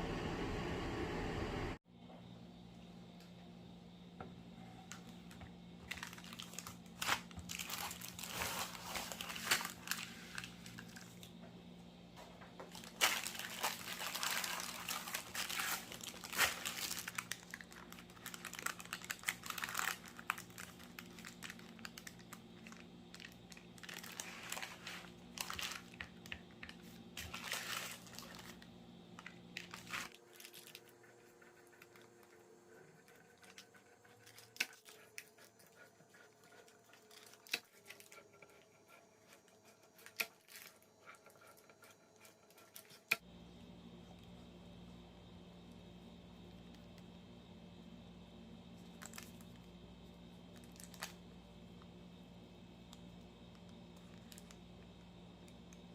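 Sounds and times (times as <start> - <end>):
steady low hum: 0.0 - 55.9
paper crinkling and rustling: 5.8 - 11.2, 12.6 - 32.0, 33.2 - 43.2.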